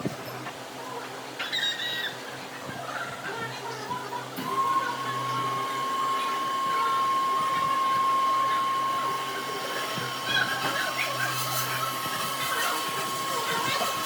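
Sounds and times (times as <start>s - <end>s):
power tool motor whining: 4.4s - 14.0s.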